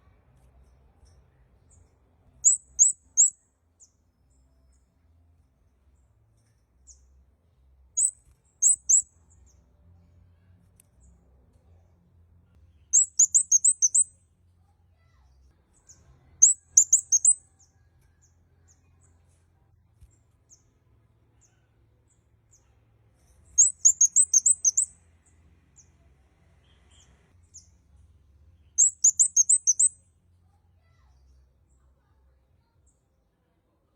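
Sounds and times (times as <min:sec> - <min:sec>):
bird chirping rapidly: 0:02.4 - 0:03.4, 0:08.0 - 0:09.1, 0:12.9 - 0:14.2, 0:16.4 - 0:17.4, 0:23.6 - 0:25.0, 0:28.6 - 0:30.0
faint single bird chirps: 0:02.4 - 0:04.0, 0:08.0 - 0:09.5, 0:12.7 - 0:14.3, 0:15.1 - 0:19.1, 0:23.5 - 0:25.0, 0:28.6 - 0:32.1.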